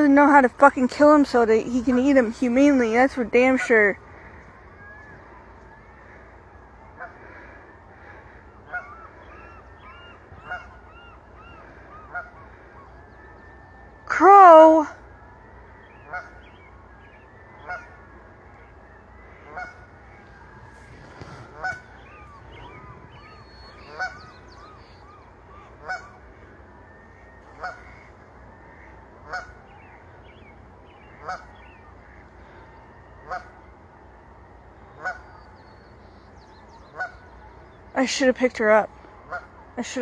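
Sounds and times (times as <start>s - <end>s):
goose honking: 0.0s - 5.2s, 6.9s - 12.6s, 16.0s - 16.5s, 17.6s - 18.0s, 19.2s - 26.2s, 27.4s - 29.9s, 31.1s - 32.6s, 33.2s - 33.5s, 35.0s - 35.6s, 36.9s - 37.6s, 38.4s - 40.0s.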